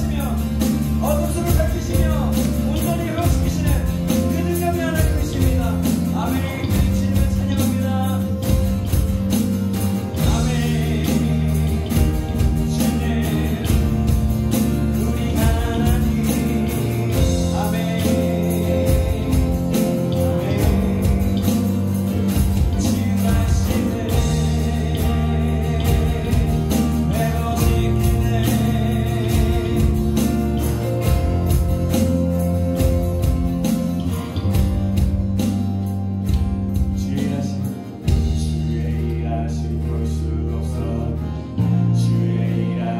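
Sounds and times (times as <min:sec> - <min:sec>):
acoustic guitar: 0:00.0 - 0:42.9
bass guitar: 0:00.0 - 0:42.9
keyboard: 0:00.0 - 0:42.9
person singing: 0:10.0 - 0:31.8, 0:36.8 - 0:42.9.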